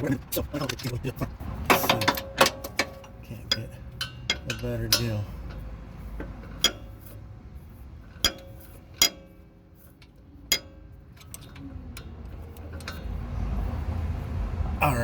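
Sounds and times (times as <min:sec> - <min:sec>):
metal tools clinking: 0:01.7 - 0:07.2, 0:08.0 - 0:13.3.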